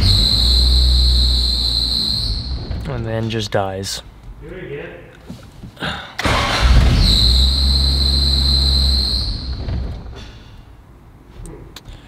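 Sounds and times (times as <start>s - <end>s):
car engine starting and stalling: 0.0s - 2.9s, 6.2s - 10.2s
high-pitched whine: 0.0s - 3.2s, 6.4s - 9.9s.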